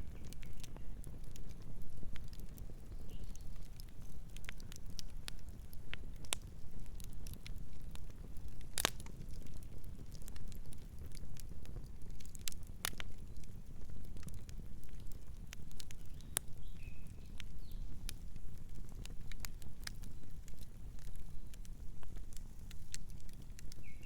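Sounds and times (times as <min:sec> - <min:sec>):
campfire crackling: 0:00.0 - 0:24.0.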